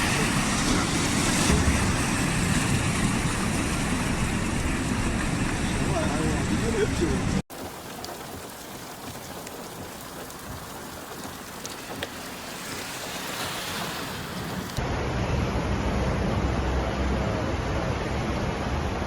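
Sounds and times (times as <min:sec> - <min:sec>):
rain falling: 0:04.5 - 0:14.8
raindrop ticks: 0:07.5 - 0:13.4.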